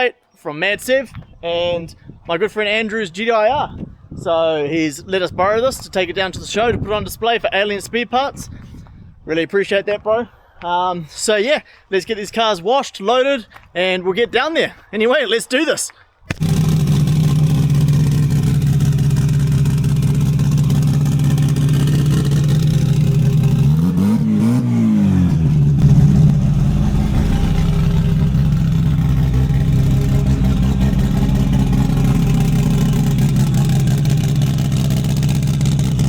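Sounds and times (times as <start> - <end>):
engine running and revving: 16.4 - 36.0.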